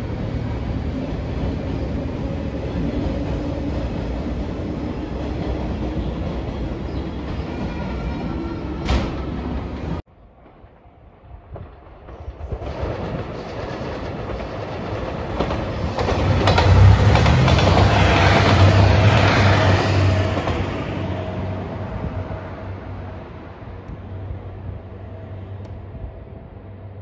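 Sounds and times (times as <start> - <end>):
train wheels on rails: 0.0 - 26.1
diesel train engine drone: 0.0 - 27.0.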